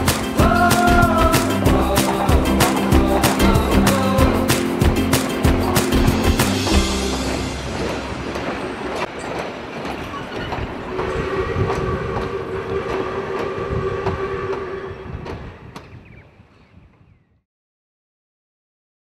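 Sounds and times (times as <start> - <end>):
train wheels clicking over rail joints: 0.8 - 15.5.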